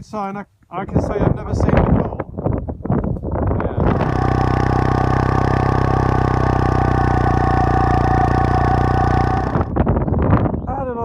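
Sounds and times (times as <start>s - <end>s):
motorcycle engine idling: 3.8s - 10.1s.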